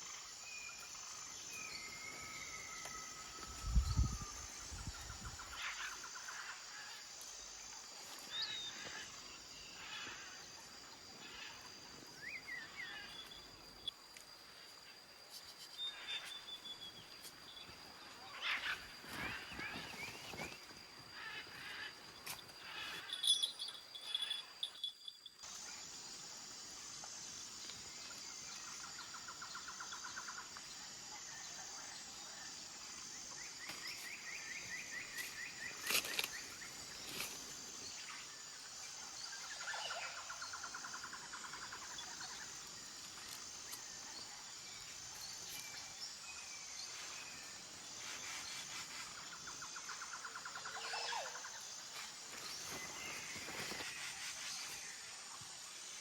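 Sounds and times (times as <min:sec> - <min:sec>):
forest birds trilling: 0:00.0 - 0:13.9, 0:15.0 - 0:26.0, 0:27.7 - 0:56.0
high-pitched insect drone: 0:21.2 - 0:56.0.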